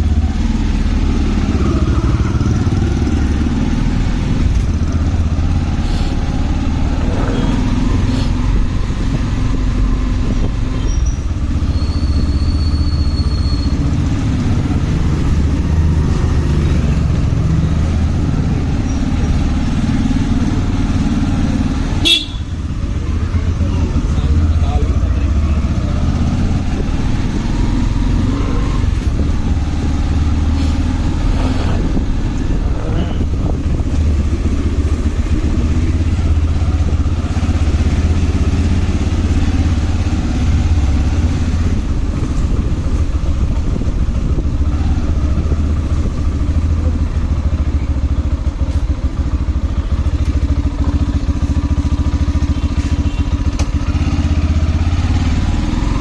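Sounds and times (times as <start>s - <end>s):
motorcycle riding at speed: 0.0s - 56.0s.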